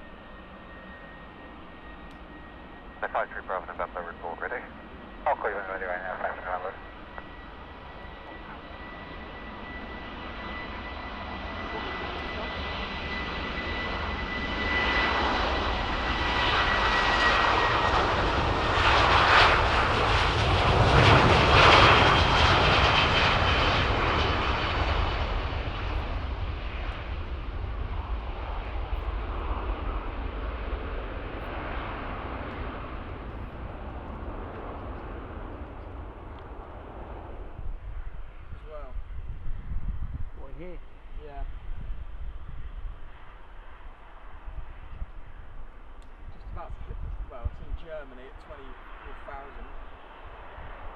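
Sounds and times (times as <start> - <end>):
high jet whine: 0.0 - 50.9
jet engines passing: 0.0 - 50.9.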